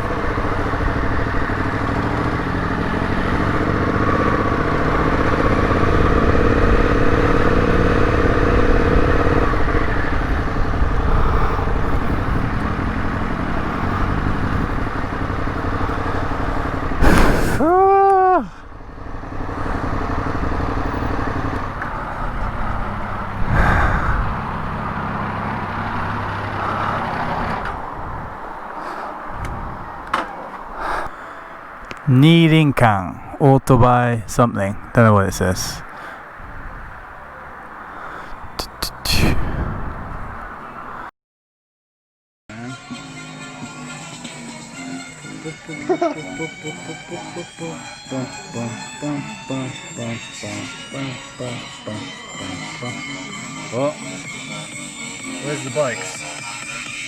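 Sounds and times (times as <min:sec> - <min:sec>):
motorcycle engine running: 0:00.0 - 0:17.6, 0:18.6 - 0:30.0
brief loud pitch-sweeping sound: 0:47.6 - 0:56.5.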